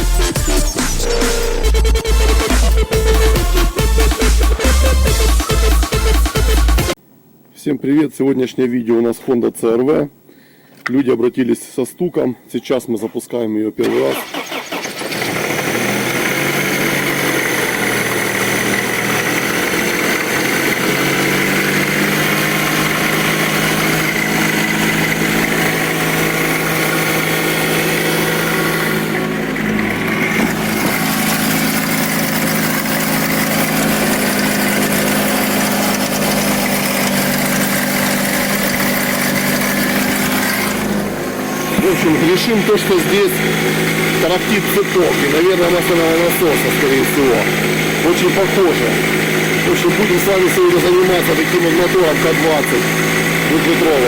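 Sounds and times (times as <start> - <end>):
car engine idling: 0.0 - 6.9, 13.8 - 54.0
knocking rattle from engine: 14.3 - 54.0.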